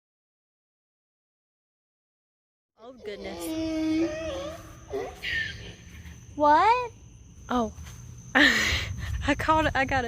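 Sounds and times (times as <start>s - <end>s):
woman speaking: 2.8s - 4.2s, 6.4s - 7.8s, 9.2s - 10.0s.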